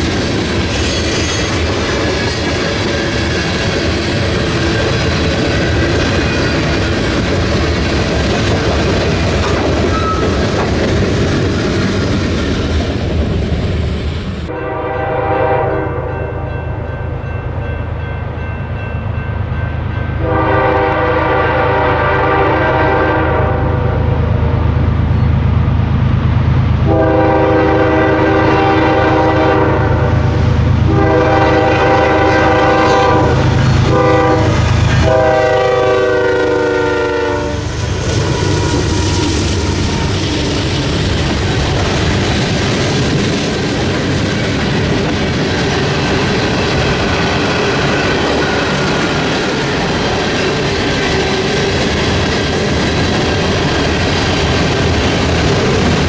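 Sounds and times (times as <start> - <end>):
diesel locomotive rumble: 0.0 - 15.6, 18.4 - 56.0
freight train wheels on rails: 0.0 - 56.0
train air horn blasts: 14.5 - 16.7, 20.2 - 24.6, 26.8 - 40.2.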